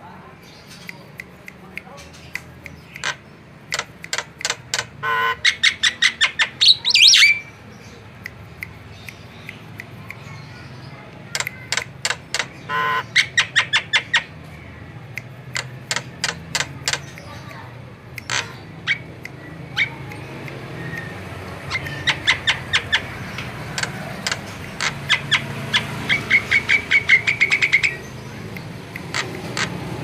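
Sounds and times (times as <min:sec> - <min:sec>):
bird clicking and chattering: 0:00.5 - 0:30.0
bird harsh rasping call: 0:02.2 - 0:07.6, 0:11.3 - 0:14.4, 0:15.5 - 0:17.6, 0:18.2 - 0:20.0, 0:21.5 - 0:30.0
bird rising whistle: 0:06.9 - 0:07.4.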